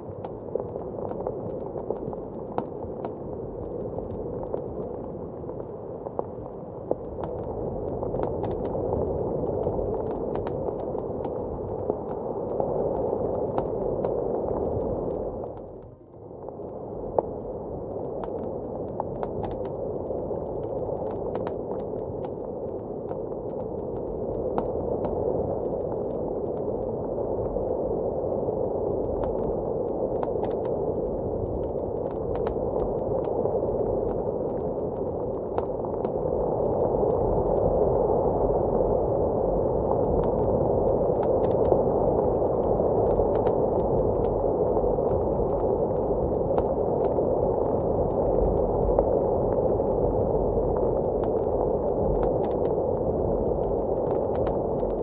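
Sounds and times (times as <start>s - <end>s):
muffled howl of blizzard wind: 0.0s - 55.0s
fireplace crackling and popping: 29.0s - 37.7s.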